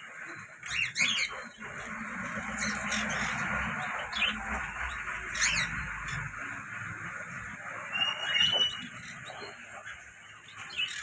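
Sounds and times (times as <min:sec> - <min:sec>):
sparrows chirping: 0:00.0 - 0:11.0.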